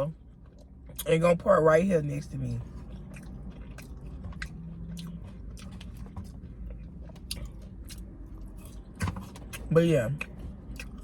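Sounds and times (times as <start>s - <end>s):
person chewing food: 2.6s - 11.0s.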